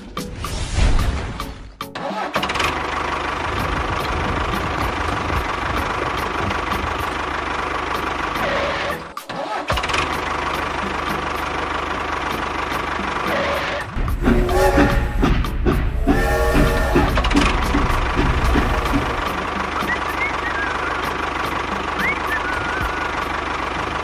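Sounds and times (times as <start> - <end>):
tractor engine running: 14.0 - 19.6.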